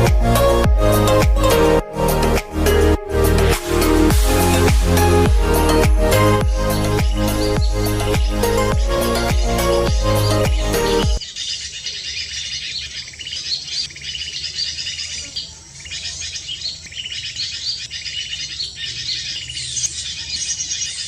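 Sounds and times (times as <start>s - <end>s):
small birds chirping: 4.5s - 21.0s.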